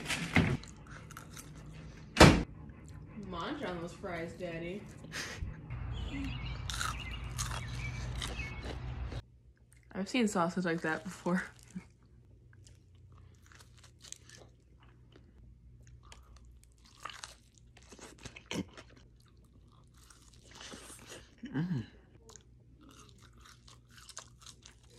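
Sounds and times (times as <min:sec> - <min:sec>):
person chewing and biting food: 0:00.6 - 0:01.8, 0:06.6 - 0:09.9, 0:11.6 - 0:21.3, 0:22.2 - 0:24.9.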